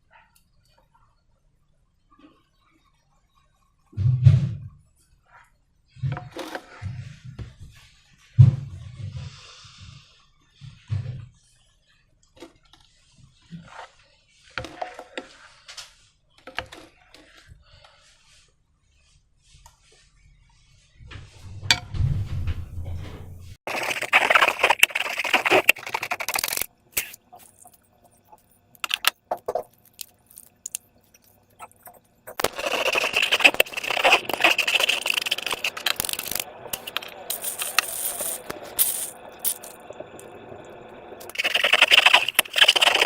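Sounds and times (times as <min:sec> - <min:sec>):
slime and balloons squishing: 0:23.6 - 0:39.8, 0:41.2 - 0:43.0.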